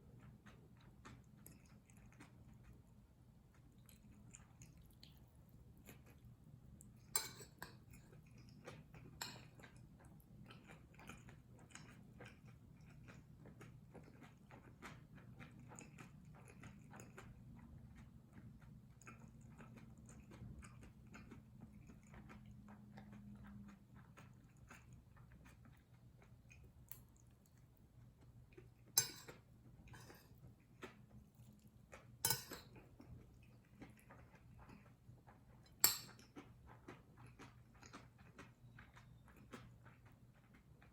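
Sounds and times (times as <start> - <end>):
wet chewing mouth sounds: 0.0 - 40.9
spoon clicking on dish: 29.0 - 29.3, 32.2 - 32.7, 35.8 - 36.2.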